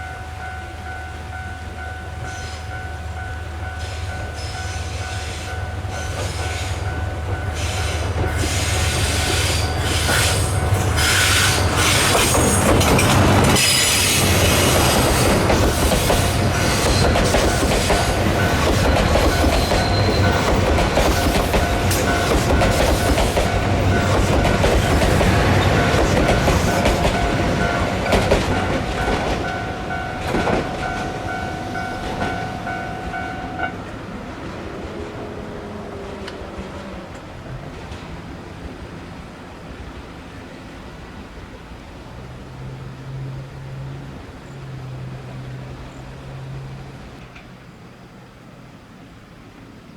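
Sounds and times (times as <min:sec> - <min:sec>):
train wheels squealing: 0:03.7 - 0:33.7
train wheels clattering: 0:03.8 - 0:33.9.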